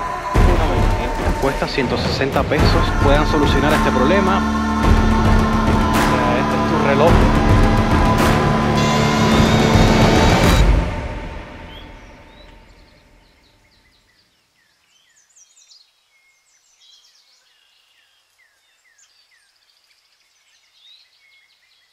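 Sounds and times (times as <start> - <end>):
music: 0.0 - 13.2
faint birdsong: 11.4 - 21.9.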